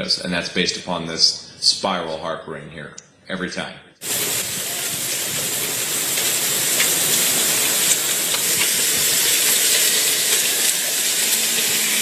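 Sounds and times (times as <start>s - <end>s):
hailstones hitting: 4.0s - 12.0s
heavy hail and rain hissing: 4.0s - 12.0s.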